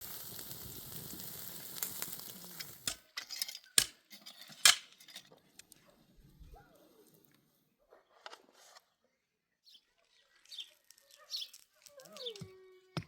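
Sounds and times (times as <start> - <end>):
food sizzling: 0.0 - 3.9
utensils clicking and knocking: 2.6 - 5.3.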